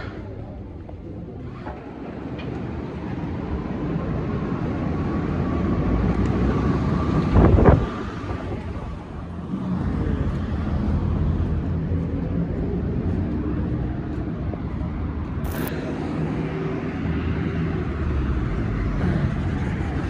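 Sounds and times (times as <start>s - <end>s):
vehicle engine rumble: 0.0s - 20.0s
short burst of noise: 15.4s - 15.9s.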